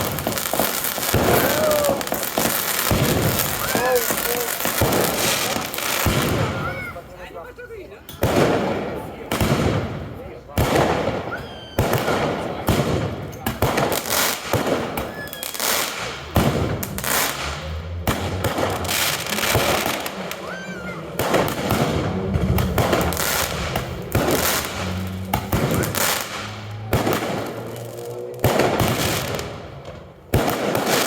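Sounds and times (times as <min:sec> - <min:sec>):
firework shells banging: 0:00.0 - 0:07.0, 0:08.0 - 0:31.0
rising firework whistle: 0:00.0 - 0:07.1, 0:11.1 - 0:12.4, 0:14.5 - 0:29.5
fireworks crackling: 0:00.0 - 0:31.0.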